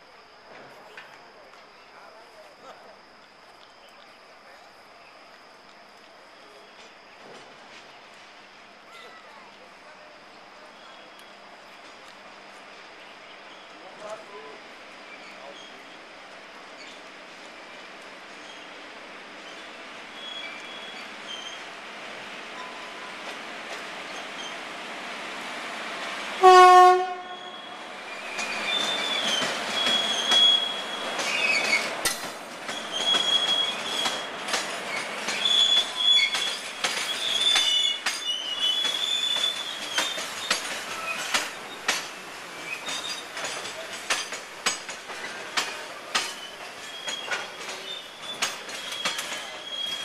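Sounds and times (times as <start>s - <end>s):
train rolling rumble: 0.0s - 50.0s
train wheels squealing: 8.8s - 11.6s, 15.0s - 24.8s, 27.2s - 50.0s
wheels clicking over rail joints: 28.4s - 50.0s.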